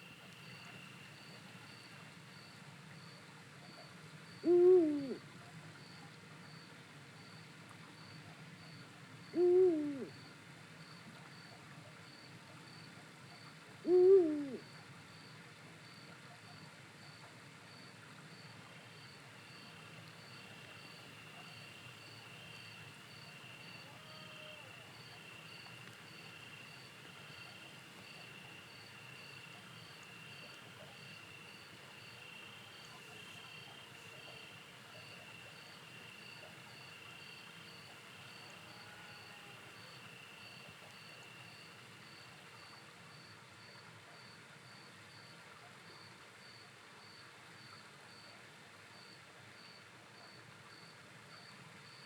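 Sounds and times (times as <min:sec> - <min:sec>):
faint cricket chirping: 0:00.0 - 0:52.0
owl hooting: 0:04.4 - 0:05.2, 0:09.4 - 0:10.1, 0:13.8 - 0:14.6, 0:21.3 - 0:41.2.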